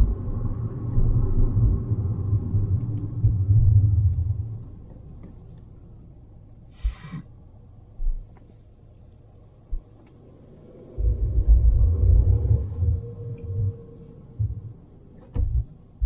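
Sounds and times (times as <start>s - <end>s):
car cabin rumble: 0.0s - 16.0s
soft thumps: 14.4s - 15.8s.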